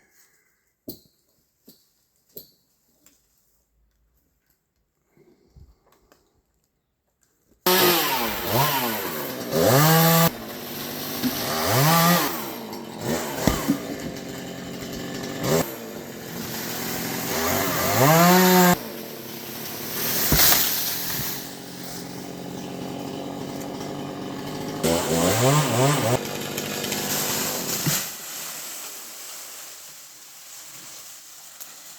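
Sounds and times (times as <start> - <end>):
chainsaw cutting into a tree: 7.7 - 28.4.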